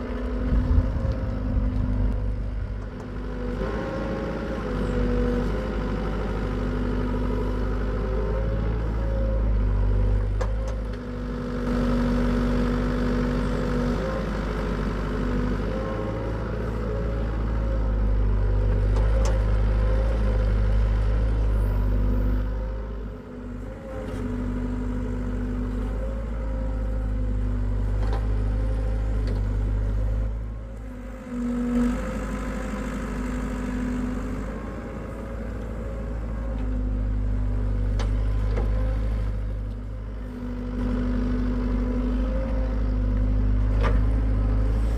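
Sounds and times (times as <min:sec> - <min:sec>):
excavator diesel engine under load: 0:00.0 - 0:44.9.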